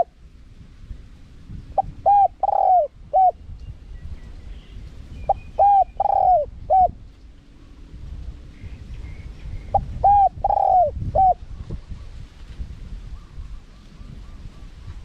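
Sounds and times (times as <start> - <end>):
dove cooing: 1.8 - 3.4, 5.3 - 7.0, 9.7 - 11.4.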